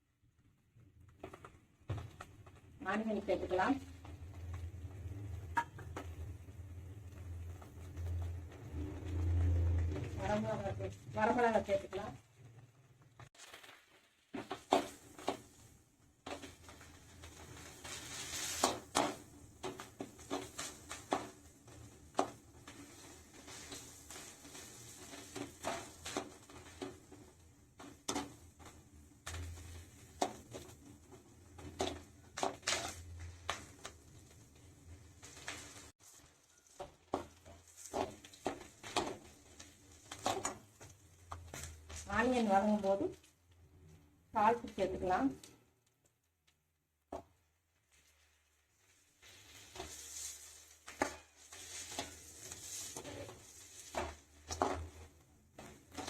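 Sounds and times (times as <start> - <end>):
faint oil sizzle: 0.0 - 45.8, 47.4 - 56.0
spatula knocking and scraping pan: 16.3 - 33.9, 36.7 - 42.0, 49.6 - 56.0.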